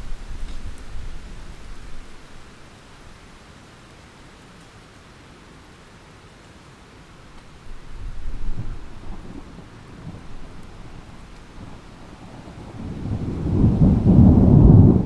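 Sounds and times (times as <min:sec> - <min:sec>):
rain hiss: 0:00.0 - 0:15.0
thunder rumbling: 0:07.7 - 0:15.0.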